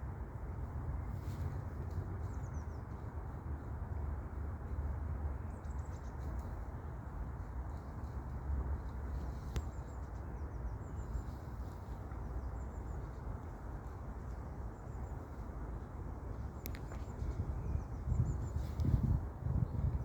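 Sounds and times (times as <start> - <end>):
steady low rumble: 6.6 - 20.0.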